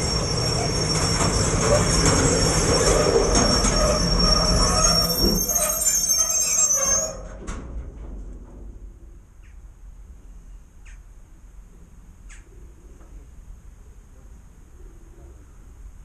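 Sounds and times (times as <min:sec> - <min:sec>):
train wheels squealing: 0:00.0 - 0:07.4.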